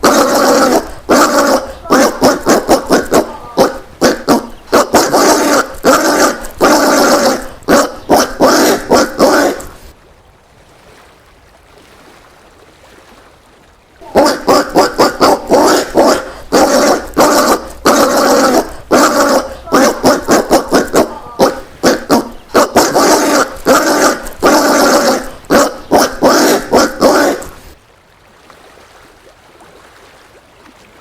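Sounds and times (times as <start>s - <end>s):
peccary barking calls: 0.0s - 9.9s, 14.0s - 27.8s.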